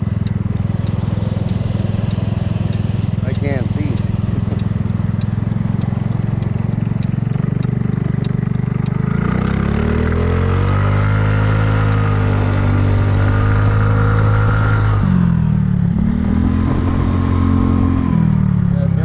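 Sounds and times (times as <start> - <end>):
light regular ticking: 0.0 - 10.8, 11.4 - 13.2
scooter engine running: 0.0 - 16.2.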